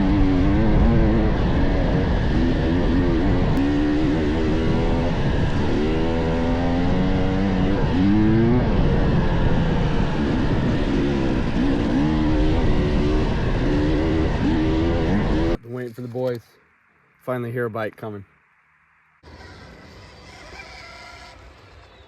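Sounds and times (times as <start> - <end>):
dirt bike engine revving: 0.0 - 15.6.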